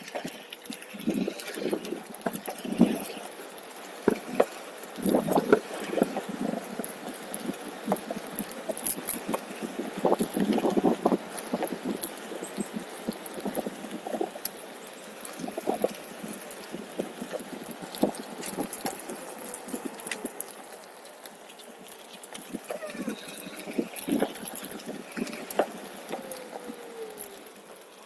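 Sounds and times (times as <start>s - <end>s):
faint electric motor whine: 0.0s - 28.0s.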